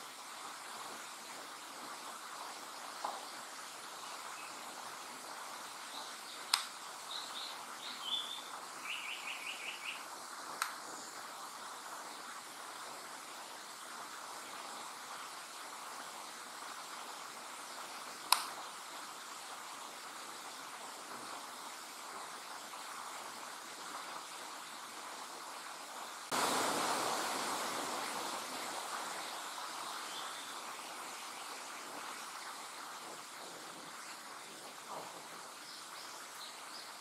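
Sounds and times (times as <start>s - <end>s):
steady background hiss: 0.0s - 37.0s
sharp clicks: 6.5s - 6.8s, 18.3s - 18.5s
bird singing: 7.1s - 10.1s.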